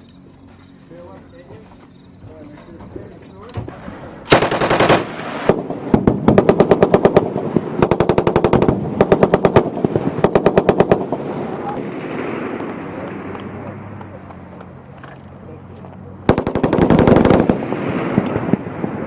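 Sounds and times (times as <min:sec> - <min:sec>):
heavy machine gun firing bursts: 0:04.3 - 0:12.3, 0:16.2 - 0:18.8.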